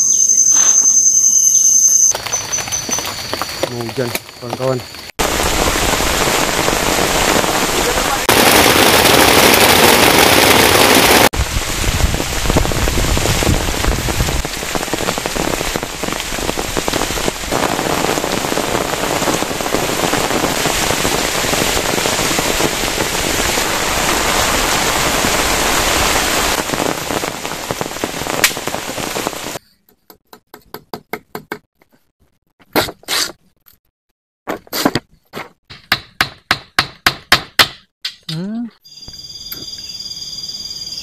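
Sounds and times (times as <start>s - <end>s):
heavy rain falling: 2.1s - 29.6s.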